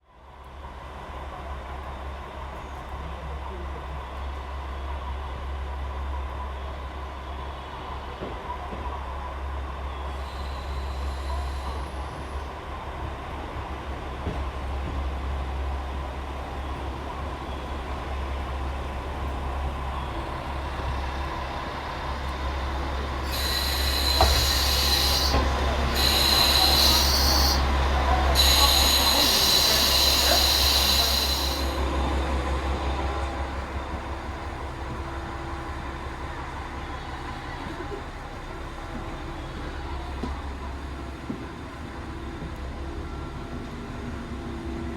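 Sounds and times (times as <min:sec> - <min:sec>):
loud high hiss: 0:23.2 - 0:31.9.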